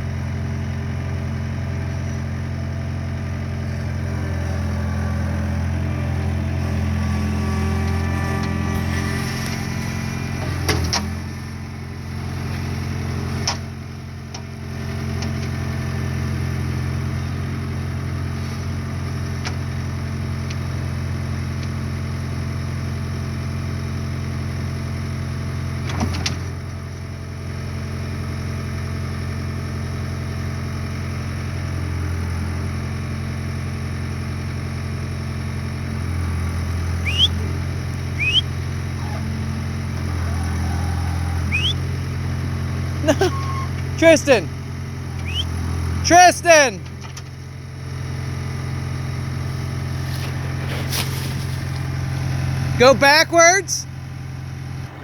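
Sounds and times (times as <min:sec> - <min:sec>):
skid steer engine running: 0:00.0 - 0:55.0
short rising squeaks: 0:37.0 - 0:37.5, 0:38.1 - 0:39.3, 0:40.2 - 0:41.9, 0:43.0 - 0:44.0, 0:45.2 - 0:45.6.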